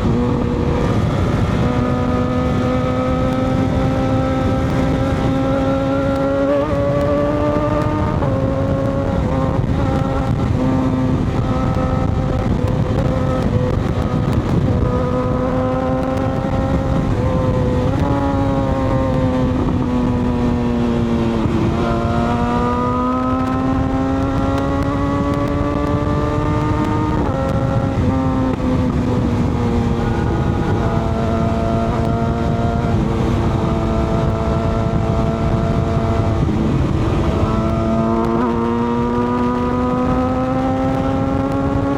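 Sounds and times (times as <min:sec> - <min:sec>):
motorcycle engine revving: 0:00.0 - 0:41.9
road noise: 0:00.0 - 0:41.9
wind rushing: 0:00.0 - 0:41.9.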